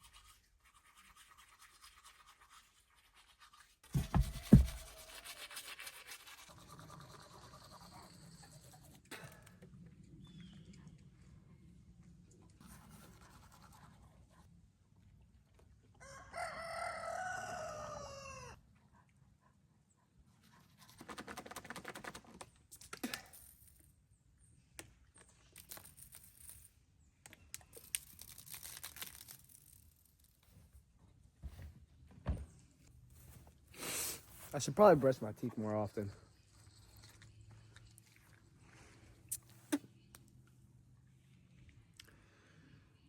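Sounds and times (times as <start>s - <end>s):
toothbrush scrubbing teeth: 0.0s - 9.2s, 12.6s - 14.3s, 36.3s - 38.6s
rooster crowing: 16.0s - 18.6s.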